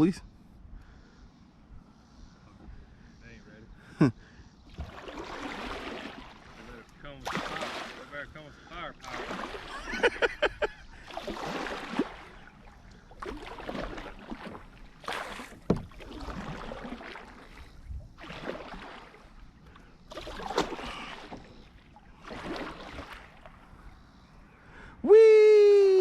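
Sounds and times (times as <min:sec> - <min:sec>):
paddle splashing through water: 0:04.7 - 0:24.1
paddle knocks: 0:13.3 - 0:17.3.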